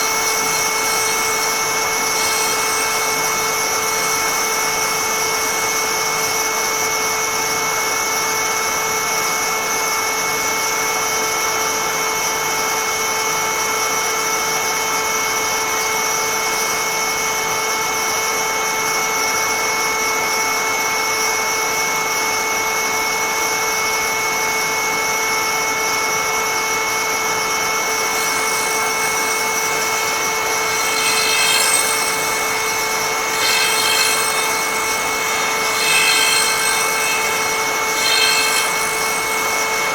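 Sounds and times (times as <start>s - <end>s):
cutter scraping wood: 0.0s - 6.4s, 27.9s - 39.9s
cutter motor whining: 0.0s - 6.8s, 27.8s - 39.9s.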